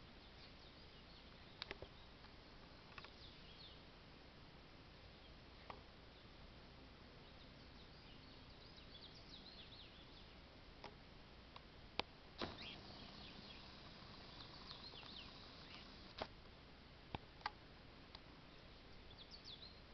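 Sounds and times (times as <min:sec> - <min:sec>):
small birds chirping: 0:00.2 - 0:03.9, 0:07.2 - 0:10.4, 0:12.4 - 0:16.2, 0:18.4 - 0:19.9
sharp clicks: 0:12.4 - 0:16.3.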